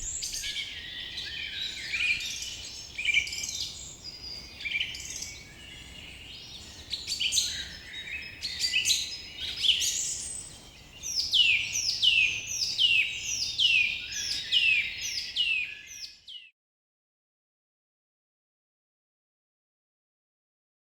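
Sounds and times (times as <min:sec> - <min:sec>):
songbird chirping: 0:00.0 - 0:16.5.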